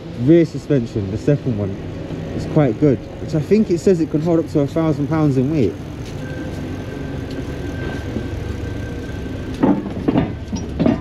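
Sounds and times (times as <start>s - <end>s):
road and traffic noise: 0.0s - 11.0s
thin steady whine: 2.0s - 10.6s.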